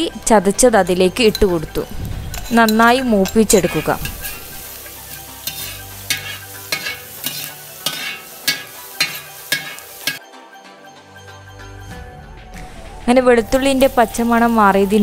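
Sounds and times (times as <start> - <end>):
garlic sizzling in hot oil: 0.0 - 10.2, 13.4 - 15.0
metal ladle scraping a pan: 2.2 - 10.2.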